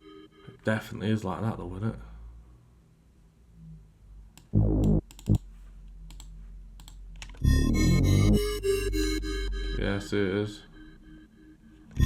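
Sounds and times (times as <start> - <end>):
mouse clicks: 4.4 - 5.5
deep synth bass note: 4.5 - 5.4, 7.4 - 10.1
beat with bell-like melody: 7.4 - 12.0.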